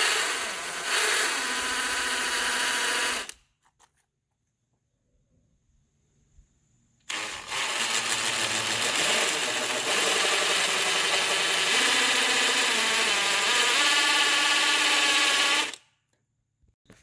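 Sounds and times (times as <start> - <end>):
power drill boring into wood: 0.0 - 3.4, 7.1 - 15.8.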